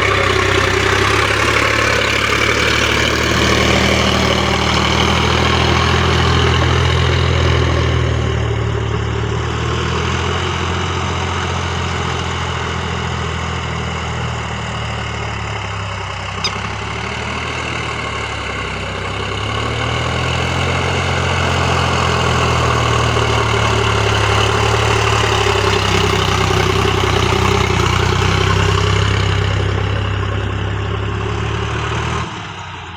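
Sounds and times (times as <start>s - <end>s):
tractor diesel engine running: 0.0s - 32.9s
sharp click: 16.4s - 16.6s.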